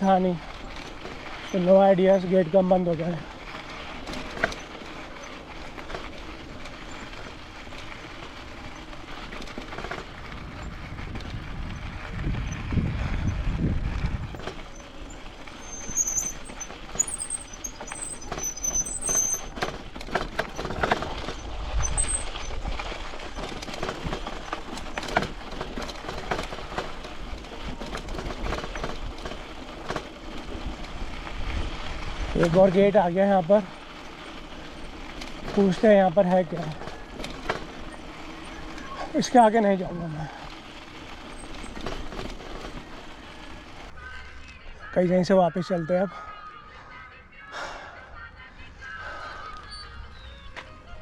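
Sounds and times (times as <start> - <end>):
bike tyre noise: 0.0 - 44.6, 48.8 - 51.0
rattling clicks: 3.5 - 10.2, 14.3 - 31.0, 33.9 - 39.7.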